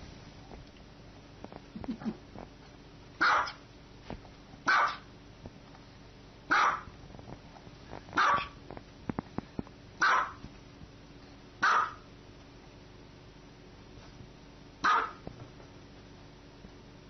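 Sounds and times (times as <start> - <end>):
dog barking: 3.2 - 3.6, 4.7 - 5.1, 6.5 - 6.9, 8.2 - 8.6, 10.0 - 10.4, 11.6 - 12.1, 14.8 - 15.2.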